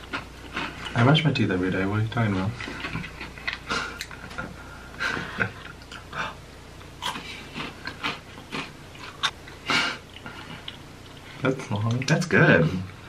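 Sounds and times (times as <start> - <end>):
chewing and wet mouth smacking: 2.6 - 4.4, 7.0 - 12.3.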